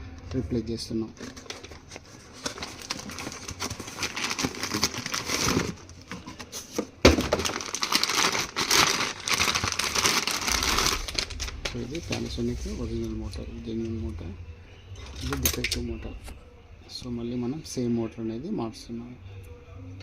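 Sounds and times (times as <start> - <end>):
crinkling crackling handling noise: 1.0 - 13.4.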